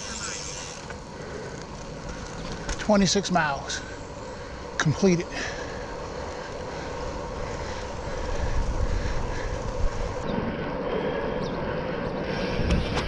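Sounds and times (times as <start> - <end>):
wind on microphone: 7.2 - 13.0.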